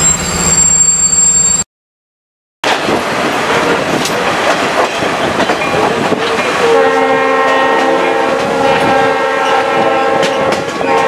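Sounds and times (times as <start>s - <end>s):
train wheels clattering on track: 2.6s - 11.0s
locomotive horn: 3.4s - 4.0s, 6.5s - 11.0s.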